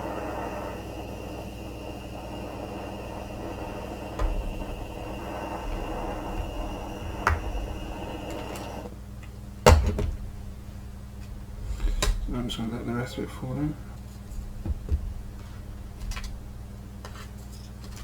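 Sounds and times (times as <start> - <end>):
steady rushing noise: 0.0 - 8.9.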